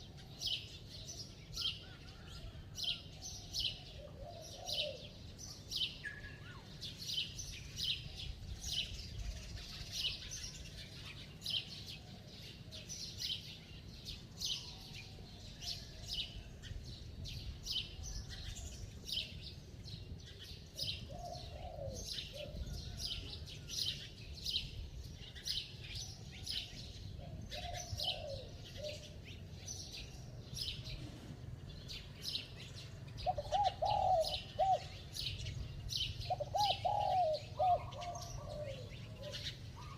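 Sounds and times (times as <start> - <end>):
small birds chirping: 0.0 - 39.9
dove cooing: 3.2 - 5.2, 20.8 - 23.3, 27.2 - 29.4, 32.8 - 39.9.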